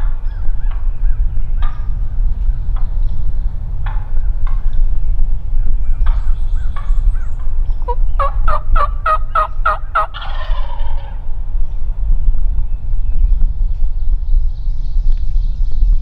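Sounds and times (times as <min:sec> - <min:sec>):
steady low rumble: 0:00.0 - 0:16.0
wild turkey gobbling: 0:05.9 - 0:11.3
turkey yelps: 0:07.9 - 0:11.2.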